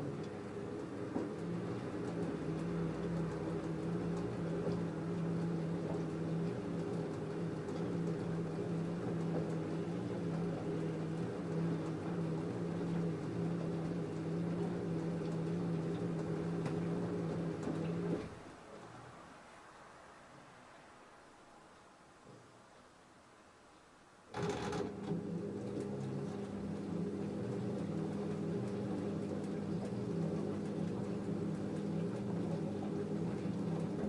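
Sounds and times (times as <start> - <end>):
washing machine motor humming: 0.0 - 19.5, 24.3 - 34.0.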